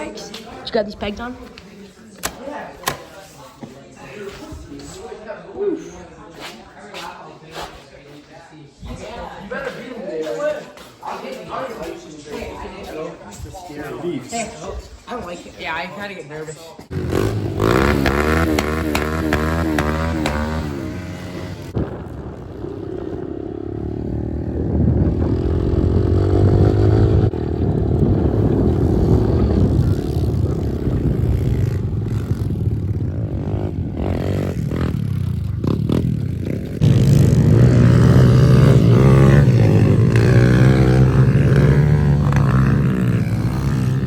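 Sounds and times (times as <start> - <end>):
pit bike engine revving: 16.9 - 44.0.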